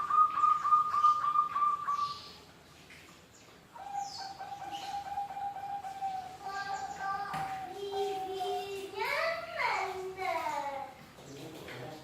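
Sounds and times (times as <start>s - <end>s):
doves cooing: 0.0s - 2.2s, 3.7s - 9.6s.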